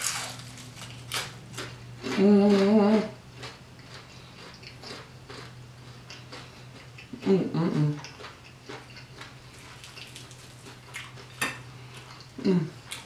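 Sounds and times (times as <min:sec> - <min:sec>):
crunching and chewing fried fish: 0:00.0 - 0:13.0
person humming mmm: 0:02.1 - 0:03.2, 0:07.2 - 0:08.1, 0:12.4 - 0:12.9.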